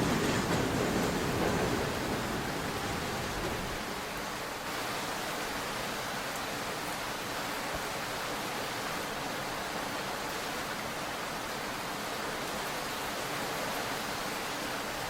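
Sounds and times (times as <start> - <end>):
train low rumble: 0.0 - 4.2
subway station ambience hiss: 0.0 - 5.8.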